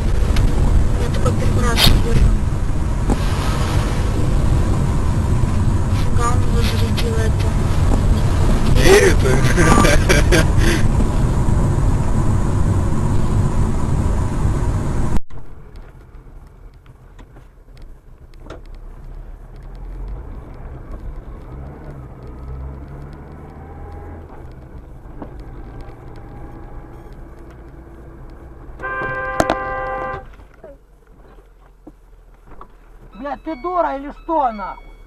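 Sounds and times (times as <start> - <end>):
car road and wind noise: 0.0 - 35.0
low engine hum: 0.0 - 35.0
car horn: 28.8 - 30.3.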